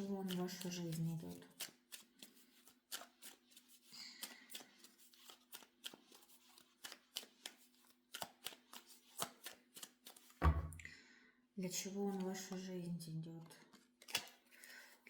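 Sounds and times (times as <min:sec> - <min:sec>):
cards being shuffled: 0:00.0 - 0:10.6, 0:13.5 - 0:14.8.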